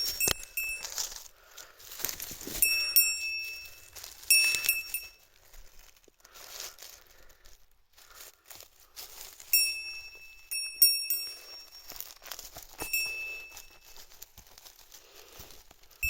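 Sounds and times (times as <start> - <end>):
small metal bell jingling: 0.0 - 1.3, 1.9 - 5.4, 9.4 - 14.9
footsteps crunching undergrowth: 0.0 - 16.0.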